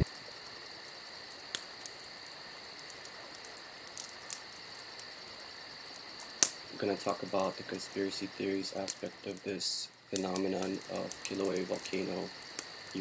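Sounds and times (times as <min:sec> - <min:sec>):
crickets chirping: 0:00.0 - 0:13.0
faint clicks: 0:01.5 - 0:02.4, 0:03.0 - 0:05.1, 0:05.9 - 0:06.6, 0:10.2 - 0:13.0.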